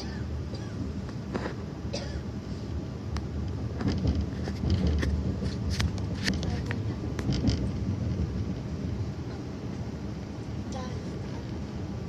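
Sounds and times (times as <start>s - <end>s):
train low rumble: 0.0s - 12.0s
sharp clicks and knocks: 3.1s - 8.6s.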